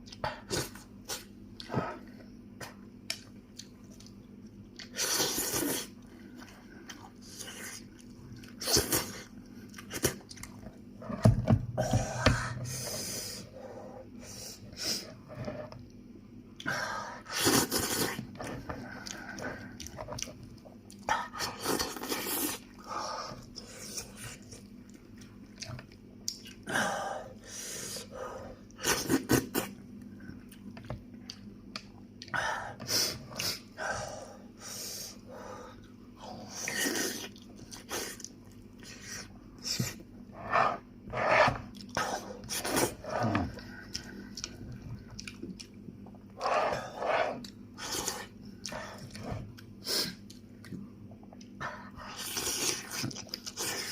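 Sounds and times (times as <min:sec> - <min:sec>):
man chewing and crunching: 0:17.5 - 0:22.8, 0:41.7 - 0:46.5, 0:47.3 - 0:53.9.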